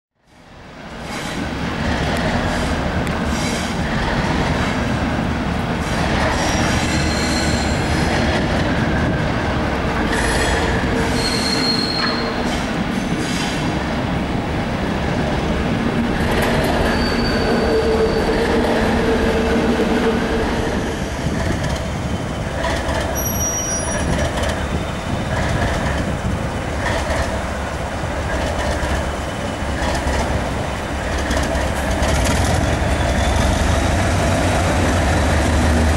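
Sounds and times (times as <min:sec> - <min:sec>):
diesel train engine rumble: 0:00.2 - 0:35.9
train wheels squealing on rails: 0:00.3 - 0:04.8, 0:05.8 - 0:09.2, 0:10.0 - 0:13.8, 0:16.2 - 0:26.2, 0:28.2 - 0:35.9
wheels clacking over rail joints: 0:15.7 - 0:20.1, 0:21.2 - 0:35.9.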